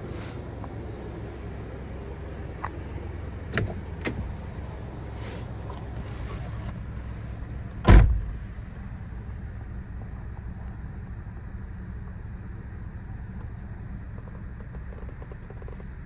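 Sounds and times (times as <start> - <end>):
car engine idling: 0.0 - 16.0
loud sharp thump: 7.9 - 8.4.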